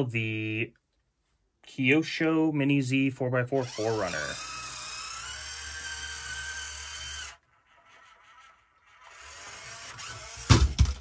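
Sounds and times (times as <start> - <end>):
electric motor whining: 3.6 - 11.0.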